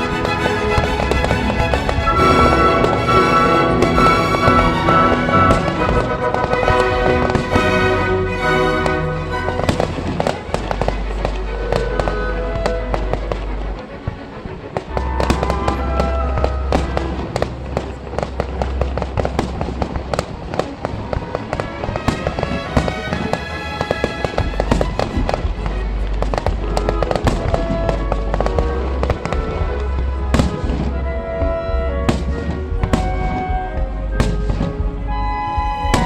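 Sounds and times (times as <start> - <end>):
loud bass-heavy music: 0.0 - 14.0, 22.0 - 36.0
fireworks bangs and crackling: 14.8 - 30.9.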